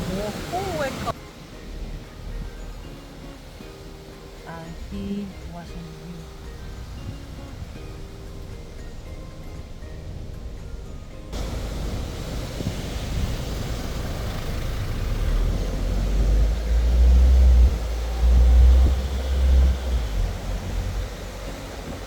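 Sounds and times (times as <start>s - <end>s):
car road noise: 0.0s - 22.0s
wind buffeting microphone: 0.0s - 22.0s.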